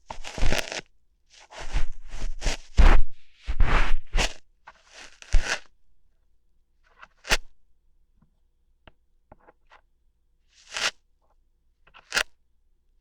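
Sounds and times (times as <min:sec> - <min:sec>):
ear hair plucking scratching: 0:00.0 - 0:05.7.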